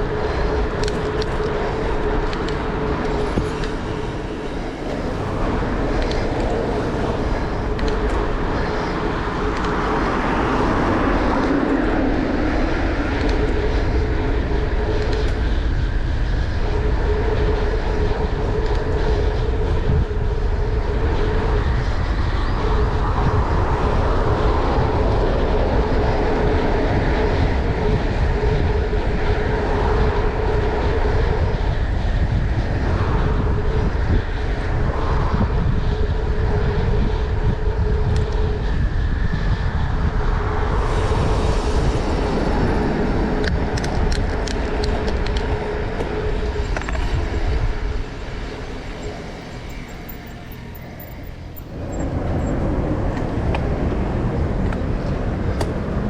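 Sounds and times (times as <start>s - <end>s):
mid-pitched hum: 32.2s - 56.0s.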